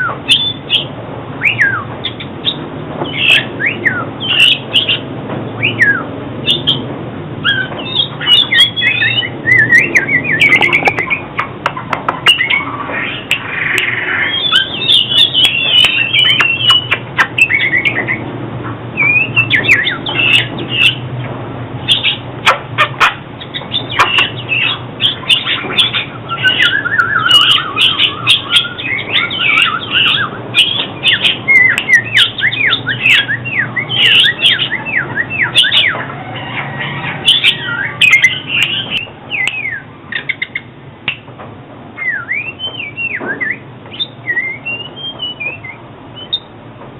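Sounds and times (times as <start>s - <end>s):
magpie-robin singing: 0.0s - 18.3s, 18.9s - 21.2s, 21.8s - 41.3s, 42.0s - 46.6s.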